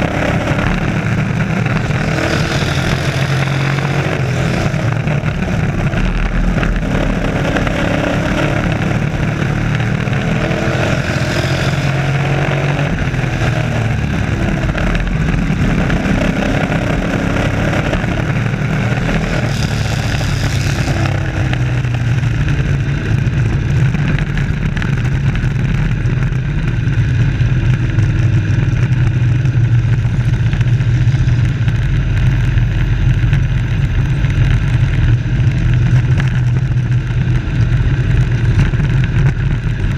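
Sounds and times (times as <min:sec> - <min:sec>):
race truck engines passing: 0:00.0 - 0:17.9.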